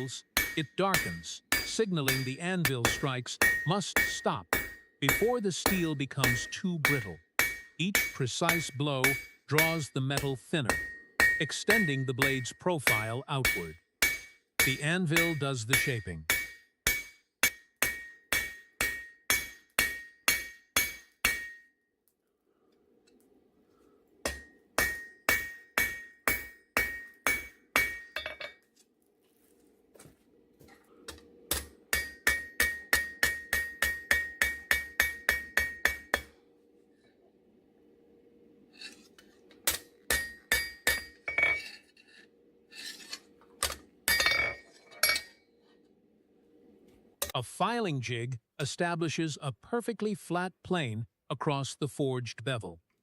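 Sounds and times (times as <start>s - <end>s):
hammer striking steel on anvil: 0.0s - 21.8s, 24.2s - 28.6s, 31.1s - 36.4s, 39.6s - 41.8s, 42.8s - 45.4s.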